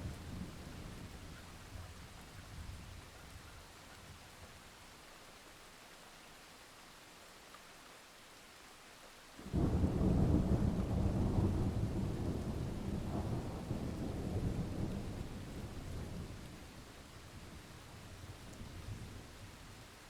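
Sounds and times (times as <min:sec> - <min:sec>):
rain hiss: 0:00.0 - 0:20.0
deep thunder rumble: 0:09.5 - 0:16.4.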